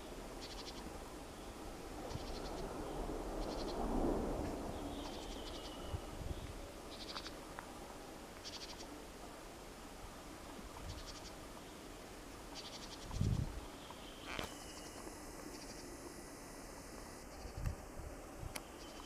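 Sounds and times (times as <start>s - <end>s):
steady background hiss: 0.0s - 19.0s
small animal trilled calls: 0.4s - 0.8s, 6.9s - 7.4s, 8.4s - 8.9s, 10.8s - 11.4s.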